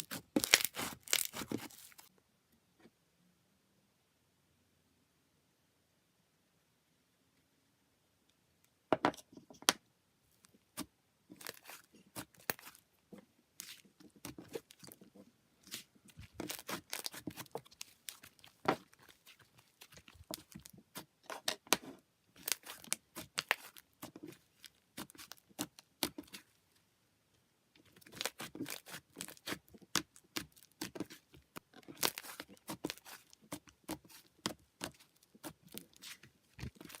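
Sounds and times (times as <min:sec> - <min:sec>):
slime squishing and crackling: 0:00.0 - 0:02.1, 0:10.8 - 0:12.8, 0:13.6 - 0:26.5, 0:27.8 - 0:37.0.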